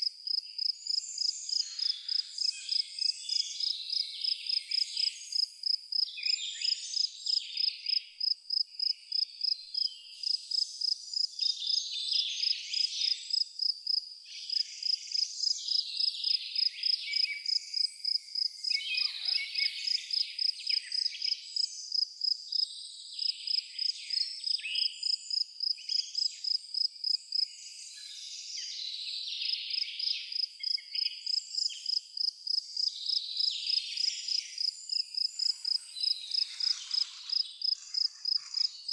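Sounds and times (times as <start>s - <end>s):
cricket chirping: 0.2s - 28.2s, 29.4s - 38.9s
birds singing and calling: 0.7s - 8.0s, 14.3s - 21.9s, 32.7s - 38.9s.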